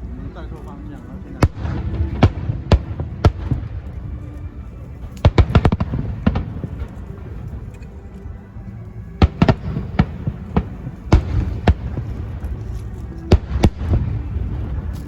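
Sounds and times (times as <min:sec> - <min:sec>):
fireworks bangs: 0:01.4 - 0:04.0, 0:05.0 - 0:07.6, 0:09.2 - 0:15.0.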